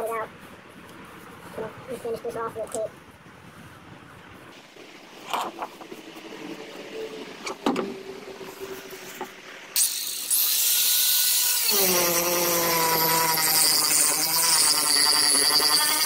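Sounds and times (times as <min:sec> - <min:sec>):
power grinder on fiberglass: 0:09.8 - 0:16.0.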